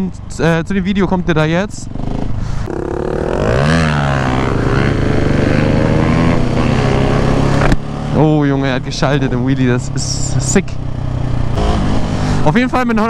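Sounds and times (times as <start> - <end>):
motorcycle engine under throttle: 1.8 - 13.0.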